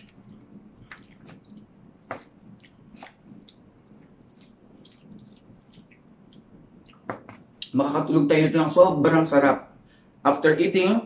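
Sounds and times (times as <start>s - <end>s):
quiet chewing: 0.0s - 7.7s
mouth clicks and smacks: 0.0s - 7.8s.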